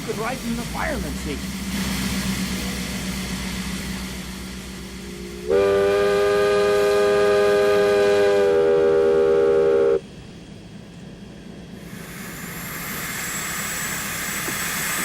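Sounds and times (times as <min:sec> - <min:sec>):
steam engine hum and hiss: 0:00.0 - 0:15.0
steam locomotive whistle: 0:05.1 - 0:10.0.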